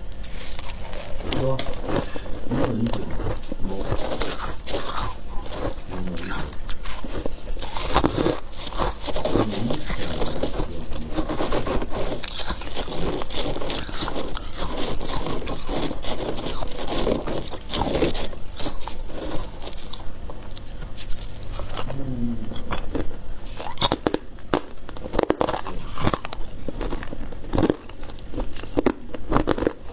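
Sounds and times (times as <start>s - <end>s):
frost being crunched: 0.1s - 20.0s.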